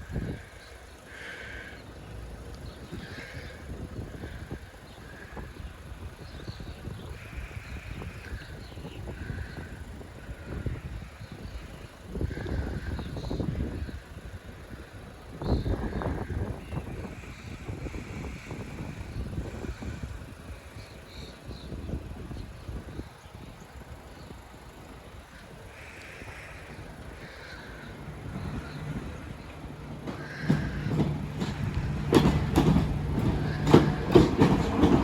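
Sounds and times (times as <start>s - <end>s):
electric train approaching: 0.0s - 35.0s
wheels clicking over rail joints: 0.0s - 35.0s.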